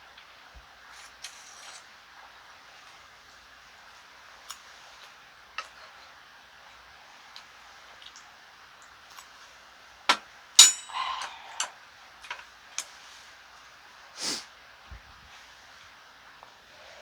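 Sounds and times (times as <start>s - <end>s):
utensils clinking against dishes: 10.1s - 13.0s
soft hiss: 11.0s - 17.0s.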